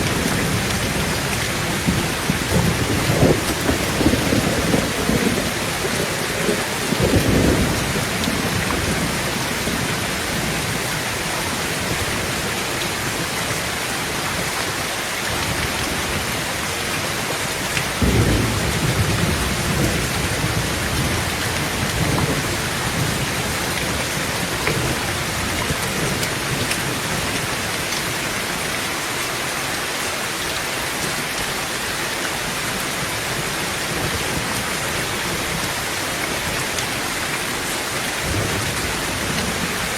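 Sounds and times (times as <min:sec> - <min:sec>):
thunderclap: 0:00.0 - 0:10.7, 0:18.0 - 0:27.2
thunder rumbling: 0:00.0 - 0:12.4, 0:17.9 - 0:27.6, 0:38.1 - 0:39.9
heavy rain on a tin roof: 0:00.0 - 0:39.9.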